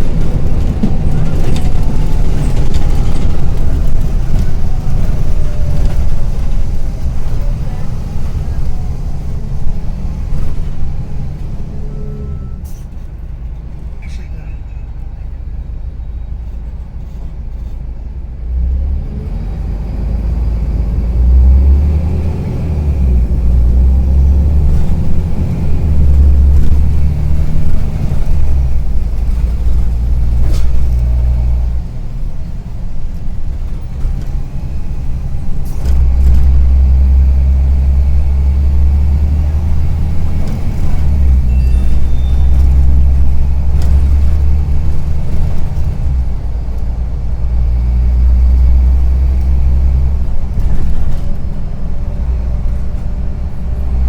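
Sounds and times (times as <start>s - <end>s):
bus engine running under load: 0.0s - 54.0s.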